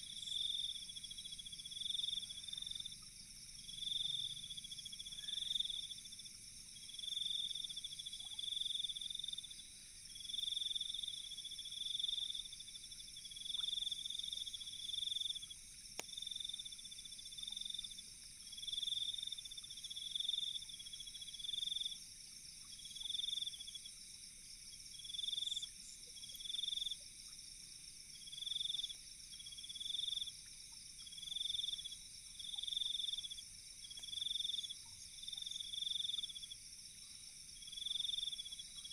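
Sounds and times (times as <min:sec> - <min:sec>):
insects chirping: 0:00.0 - 0:38.9
faint campfire crackle: 0:15.3 - 0:18.6.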